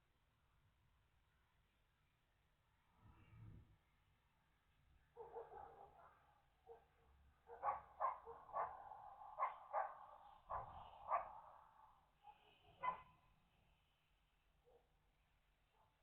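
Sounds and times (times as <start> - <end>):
dog barking: 5.2 - 13.2.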